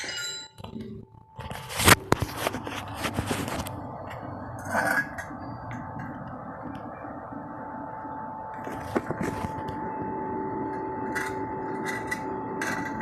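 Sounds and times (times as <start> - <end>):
metal clinking and scraping: 0.0 - 0.8, 11.0 - 13.0
steady low hum: 0.2 - 13.0.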